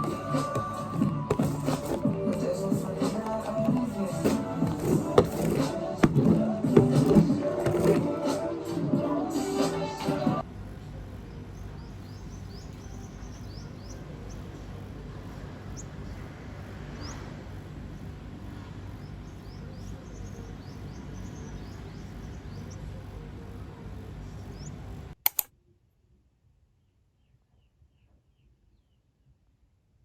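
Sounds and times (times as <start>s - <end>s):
background hum: 0.0s - 30.0s
small birds chirping: 11.3s - 14.8s, 18.9s - 23.2s, 24.2s - 24.8s
sharp clicks: 25.2s - 25.5s.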